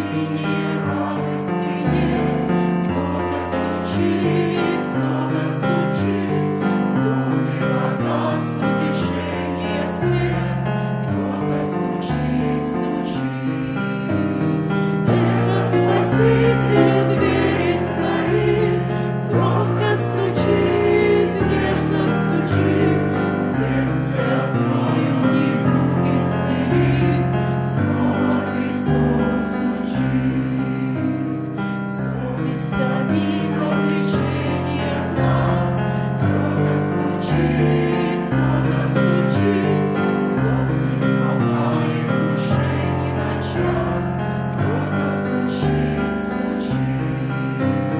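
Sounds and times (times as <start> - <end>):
choir singing a hymn: 0.0 - 47.9
piano accompaniment: 0.0 - 47.9.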